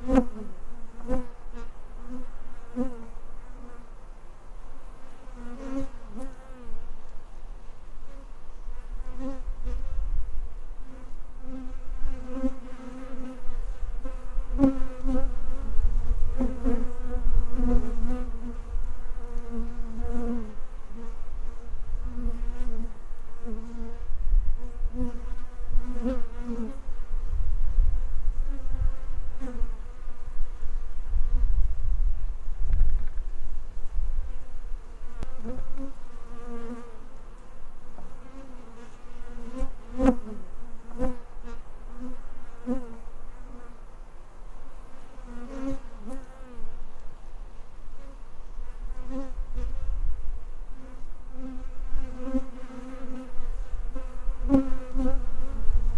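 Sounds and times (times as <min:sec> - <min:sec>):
honeybees buzzing: 0:33.1 - 0:46.9, 0:47.7 - 0:55.9.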